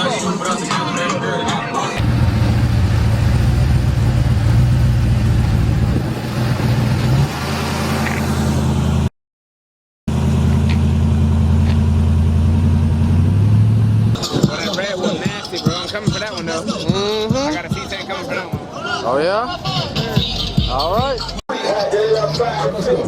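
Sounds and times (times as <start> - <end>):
car engine running: 2.0 - 9.1, 10.1 - 14.2.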